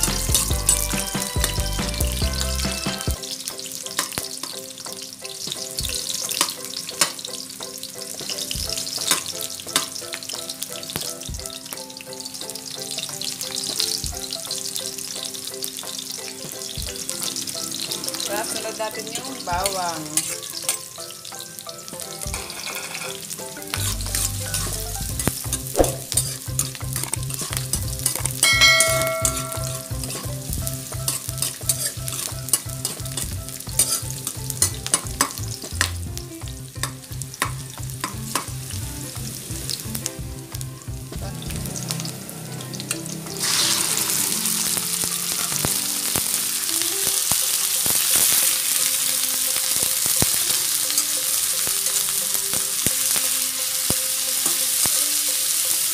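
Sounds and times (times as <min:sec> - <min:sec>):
chicken sizzling in oil: 0:00.0 - 0:55.9
onions sizzling in hot oil: 0:00.0 - 0:55.9
metal spatula scraping pan: 0:22.3 - 0:23.2, 0:23.8 - 0:30.3, 0:31.0 - 0:33.0, 0:33.7 - 0:35.4.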